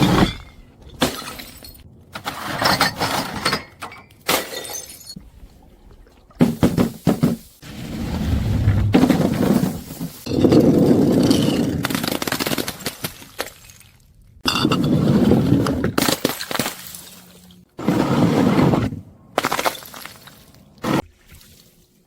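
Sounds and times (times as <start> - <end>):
glass bottles smashing: 0.0 - 5.2
glass shards clattering: 2.4 - 5.2.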